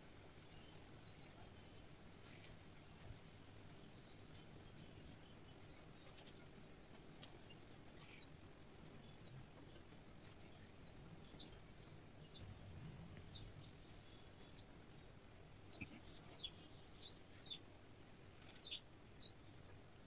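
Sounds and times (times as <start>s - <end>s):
bird chirping faintly: 3.7s - 20.0s.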